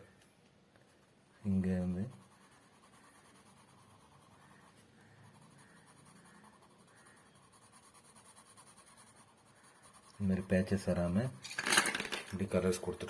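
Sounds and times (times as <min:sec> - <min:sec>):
colour pencil scratching on paper: 0:00.8 - 0:11.4.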